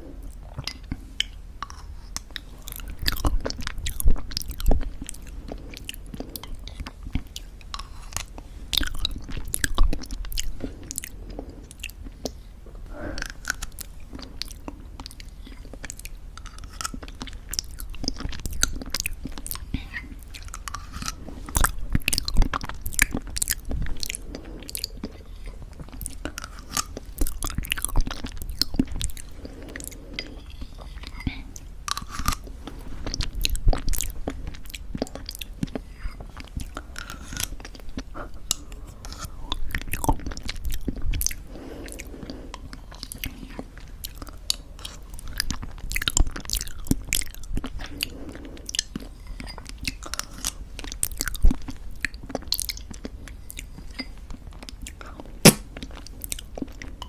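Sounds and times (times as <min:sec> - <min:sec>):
crunchy chewing: 0:13.1 - 0:54.0.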